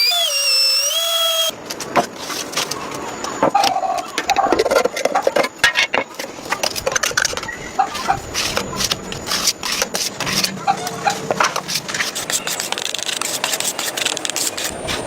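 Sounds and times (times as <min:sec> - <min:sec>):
scraping and rubbing: 0:06.7 - 0:15.0.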